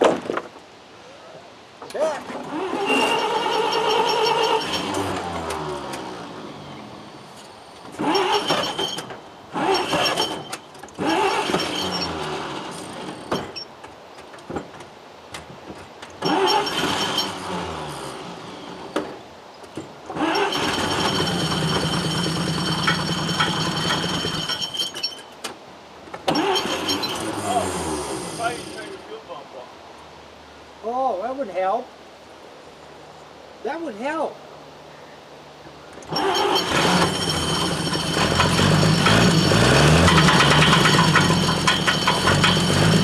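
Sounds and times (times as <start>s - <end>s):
truck engine cranking and firing: 2.4s - 7.2s, 7.8s - 13.7s, 14.3s - 29.0s, 36.0s - 43.0s.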